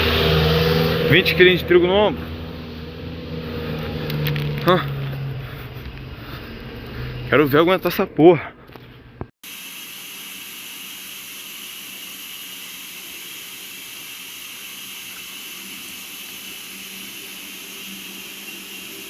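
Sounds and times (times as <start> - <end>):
steady hiss: 9.5 - 19.0.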